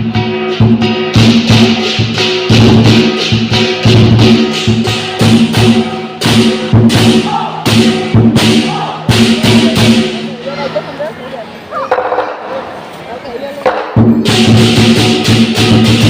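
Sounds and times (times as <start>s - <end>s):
clashing cymbals: 0.0s - 10.4s, 13.7s - 16.0s
large drum beaten quickly: 0.0s - 10.4s, 13.6s - 16.0s.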